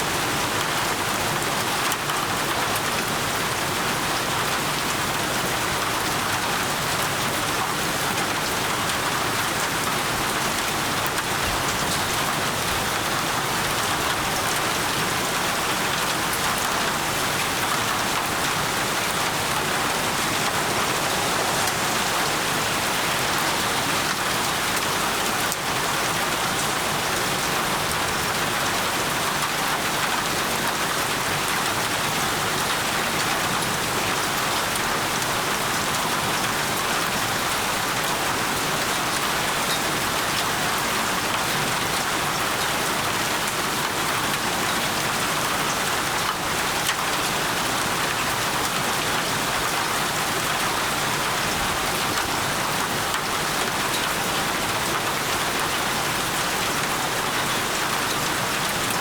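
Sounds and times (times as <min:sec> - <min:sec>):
rain falling on a surface: 0:00.0 - 0:59.0.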